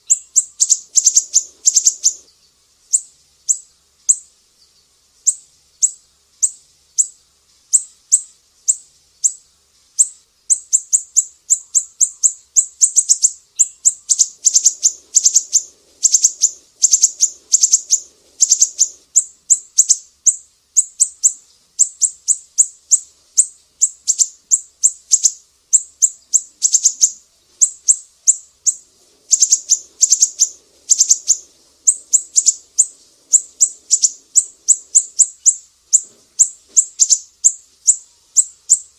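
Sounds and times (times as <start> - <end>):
faint low hum: 0.0 - 38.9
songbird chirping and trilling: 0.0 - 38.9.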